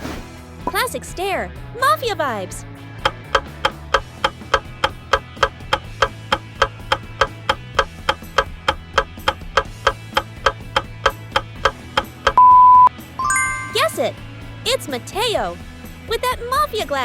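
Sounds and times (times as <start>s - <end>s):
fast clock ticks: 3.0s - 12.4s
loud steady beep: 12.4s - 14.0s.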